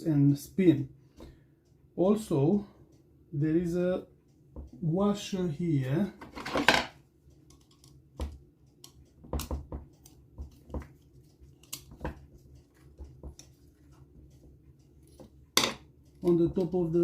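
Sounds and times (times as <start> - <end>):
metal parts and tools clicking: 6.2 - 8.0.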